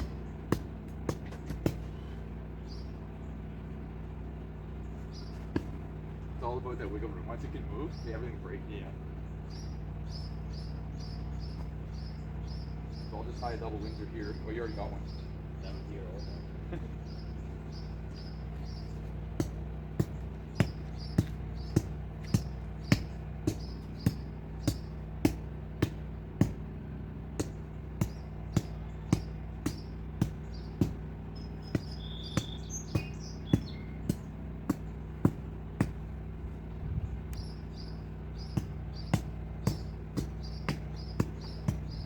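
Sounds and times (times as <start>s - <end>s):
steady low hum: 0.0s - 42.0s
high bird chirps: 2.0s - 3.4s, 9.2s - 26.5s, 27.4s - 36.0s, 37.0s - 42.0s.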